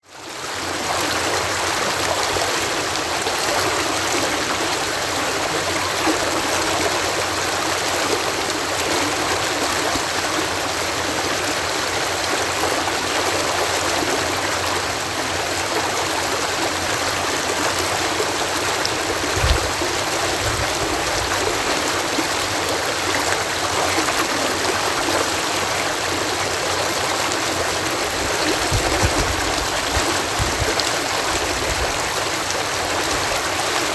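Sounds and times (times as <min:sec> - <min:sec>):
water cascading: 0:11.6 - 0:33.9
low thumps: 0:28.4 - 0:31.9.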